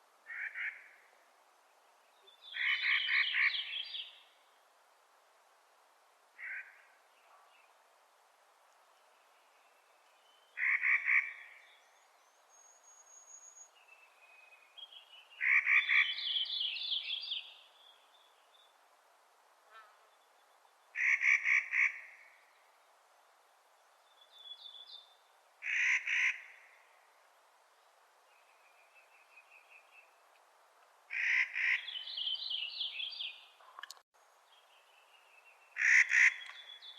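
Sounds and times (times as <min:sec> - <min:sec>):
bird harsh rattling calls: 0:35.8 - 0:36.6.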